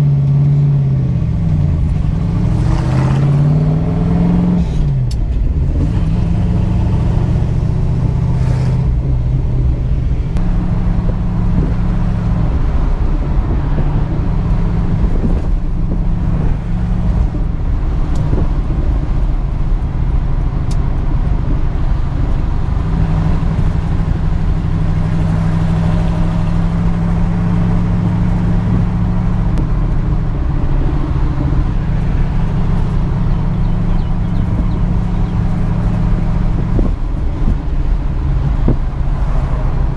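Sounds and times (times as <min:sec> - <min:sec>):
car engine idling: 0:08.9 - 0:39.9.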